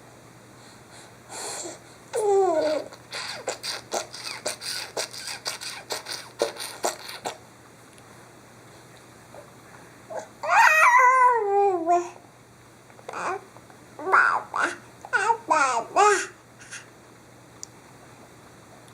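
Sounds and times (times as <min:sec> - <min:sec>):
squeaking oinking sounds: 0:03.1 - 0:07.4.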